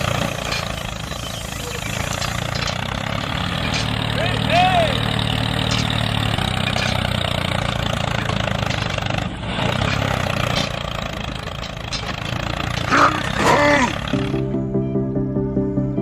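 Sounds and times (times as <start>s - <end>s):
small engine running: 0.0s - 14.6s
music: 14.1s - 16.0s.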